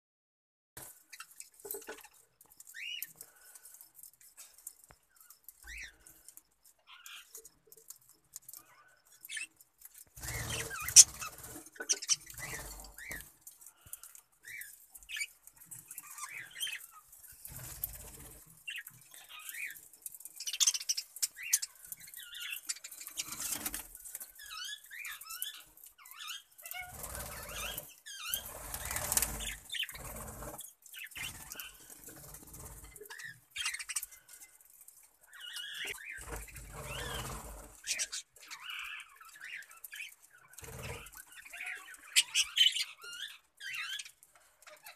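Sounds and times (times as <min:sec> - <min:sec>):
budgerigars chirping: 0:10.2 - 0:13.2.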